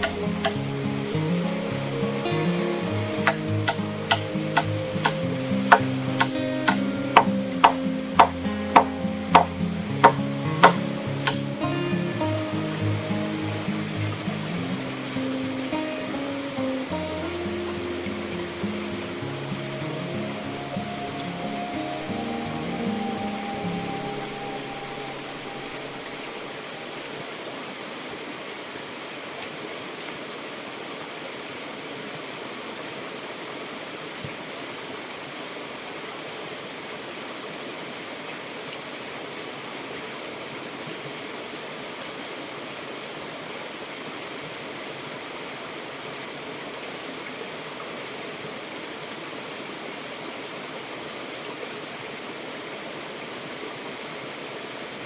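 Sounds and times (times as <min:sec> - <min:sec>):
music: 0:00.0 - 0:26.4
rushing water: 0:00.0 - 0:55.0.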